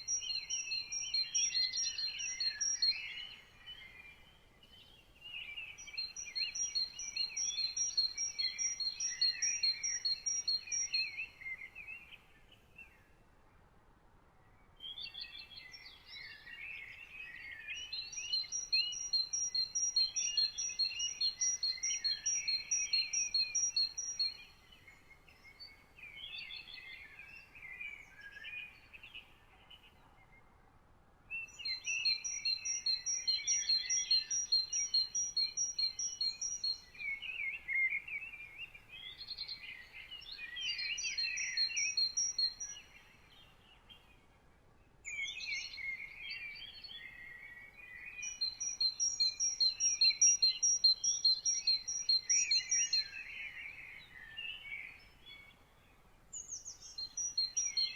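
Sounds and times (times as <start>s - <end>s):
songbirds warbling: 0.0s - 12.7s, 15.4s - 29.9s, 31.5s - 43.1s, 45.1s - 55.6s, 56.4s - 57.9s.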